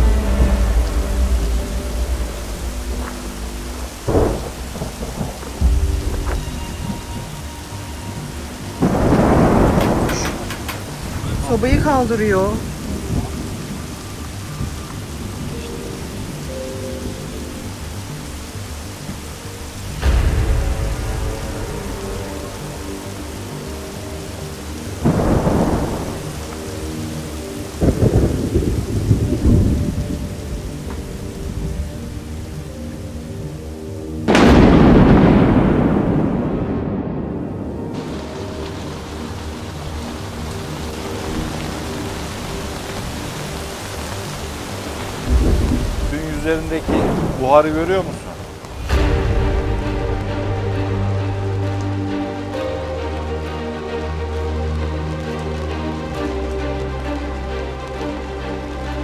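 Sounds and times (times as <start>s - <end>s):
heavy rain falling: 0.0s - 59.0s
thunder rumbling: 0.0s - 59.0s.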